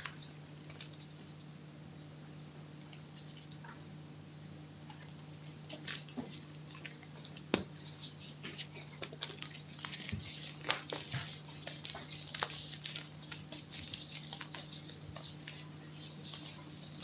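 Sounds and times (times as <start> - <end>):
chalk crunching: 5.2 - 17.0.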